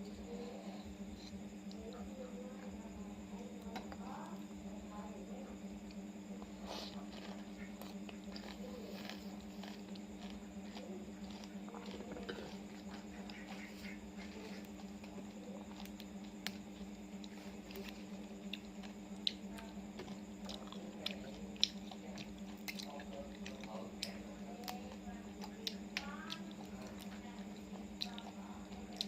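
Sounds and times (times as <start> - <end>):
steady low hum: 0.0 - 29.0
chewing and wet mouth noises: 5.8 - 29.0.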